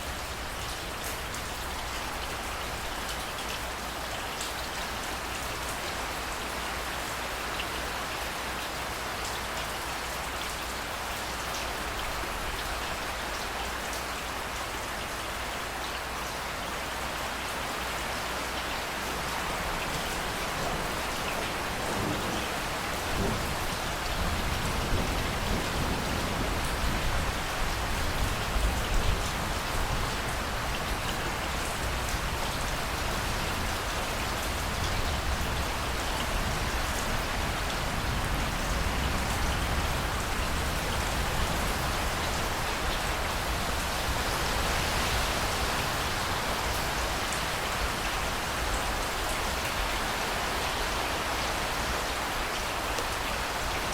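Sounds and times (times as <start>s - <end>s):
steady rain: 0.0s - 53.9s
rumble of thunder: 21.8s - 27.4s.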